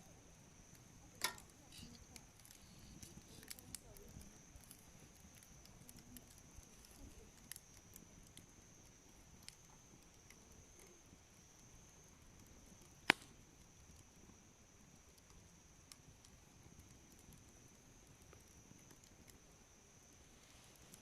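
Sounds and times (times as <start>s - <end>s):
campfire crackling: 0.0s - 21.0s
sharp loud fire pop: 13.1s - 13.3s.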